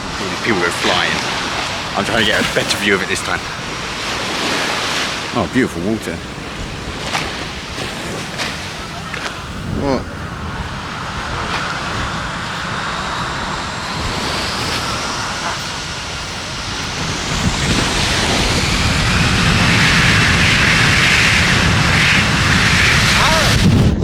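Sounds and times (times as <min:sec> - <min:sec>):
jet engines spooling up: 0:00.0 - 0:23.7
wind buffeting microphone: 0:00.0 - 0:24.0.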